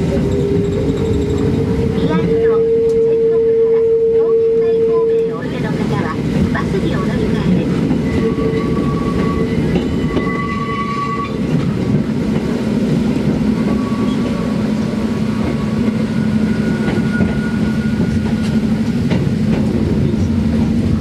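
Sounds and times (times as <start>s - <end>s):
train wheels rumbling on rail: 0.0s - 21.0s
high wheel squeals: 8.0s - 11.4s, 13.6s - 14.6s, 15.5s - 18.6s.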